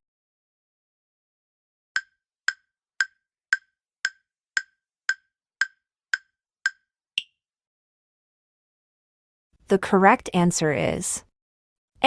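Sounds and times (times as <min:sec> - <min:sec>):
countdown timer ticking: 0:02.0 - 0:07.3.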